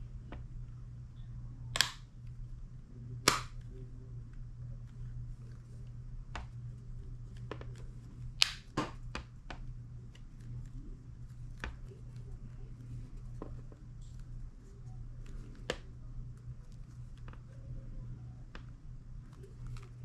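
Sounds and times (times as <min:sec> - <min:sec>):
plastic case clips snapping: 0:01.8 - 0:02.0, 0:03.3 - 0:03.6.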